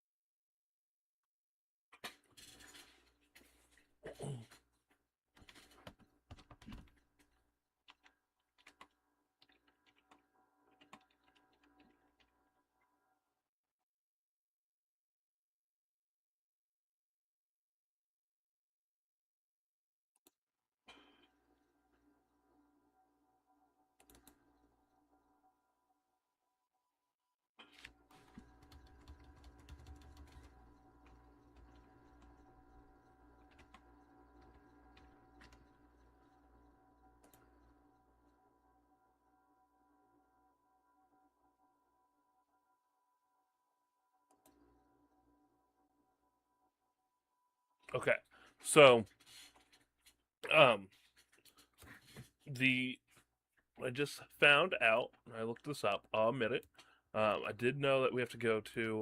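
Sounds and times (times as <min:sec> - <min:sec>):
typing on keyboard: 0:07.9 - 0:12.0, 0:28.1 - 0:32.4.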